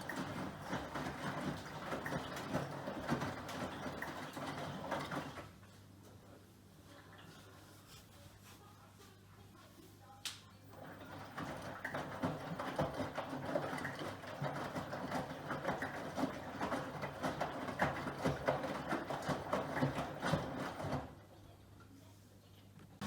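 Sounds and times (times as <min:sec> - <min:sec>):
washing machine load tumbling: 0:00.0 - 0:05.6, 0:10.7 - 0:21.3.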